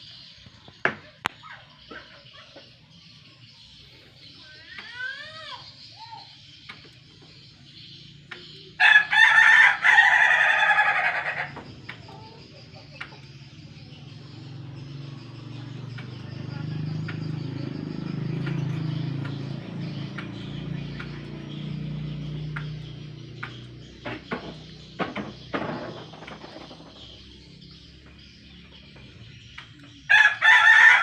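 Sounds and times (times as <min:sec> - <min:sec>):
rooster crowing: 0:08.8 - 0:11.6, 0:30.1 - 0:31.0.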